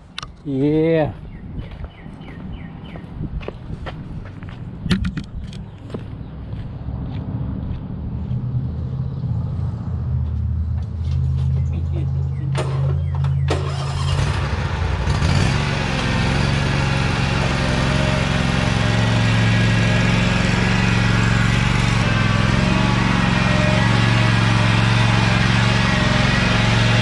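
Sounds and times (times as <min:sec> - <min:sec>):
small engine running: 0:13.5 - 0:27.0.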